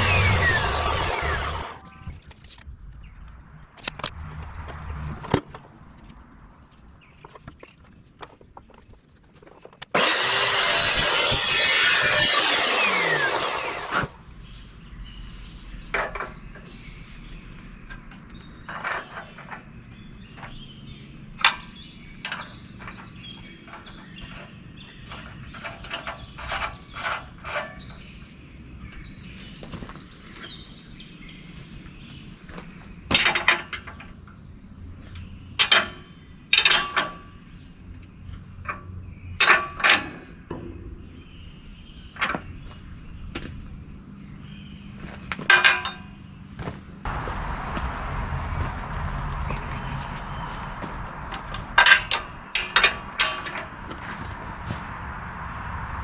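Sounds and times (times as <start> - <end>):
high-speed power tool whine: 0.0 - 1.9, 9.9 - 14.2.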